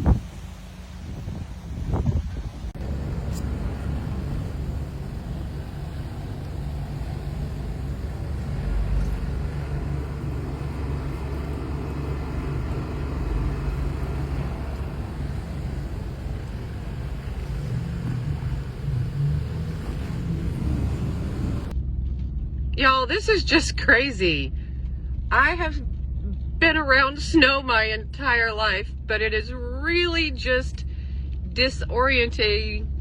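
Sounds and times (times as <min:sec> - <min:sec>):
vehicle engine and road noise: 0:00.0 - 0:33.0.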